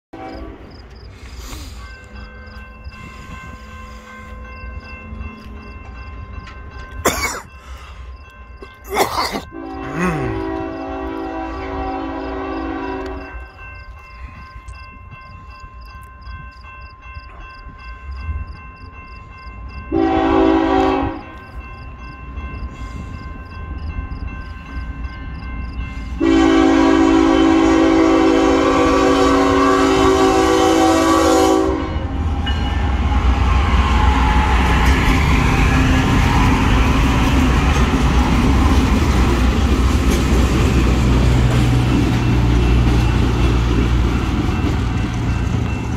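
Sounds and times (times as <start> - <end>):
locomotive air horn: 0.2 - 0.7, 9.4 - 13.3, 19.9 - 21.3, 26.1 - 32.1
crossing bell ringing: 0.2 - 45.9.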